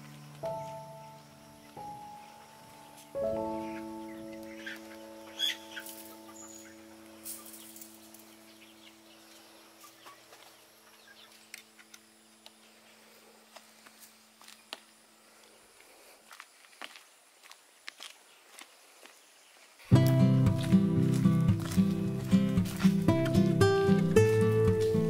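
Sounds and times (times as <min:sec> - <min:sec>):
background music chord: 0:00.0 - 0:09.4, 0:19.9 - 0:25.0
faint poultry clucking: 0:03.6 - 0:07.6, 0:08.3 - 0:12.0.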